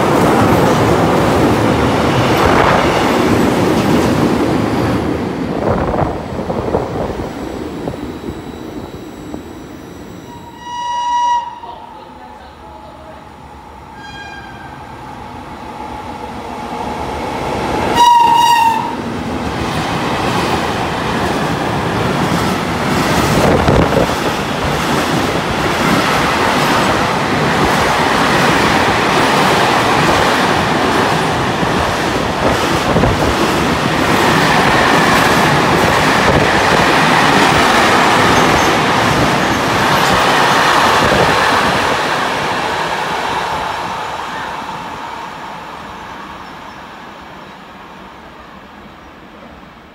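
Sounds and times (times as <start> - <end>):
train horn blast: 10.3 - 13.2, 13.9 - 14.9, 17.9 - 19.0.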